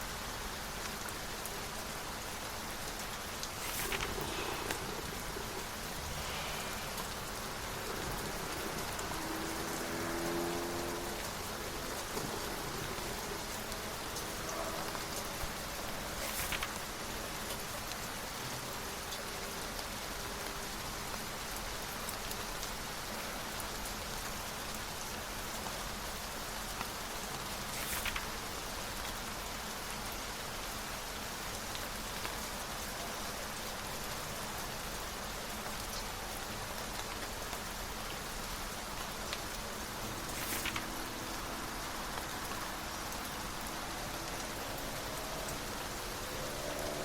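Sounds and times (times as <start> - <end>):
steady rain: 0.0 - 47.0
brief rustles: 3.4 - 7.4, 16.1 - 16.9, 27.6 - 28.4, 40.1 - 41.2.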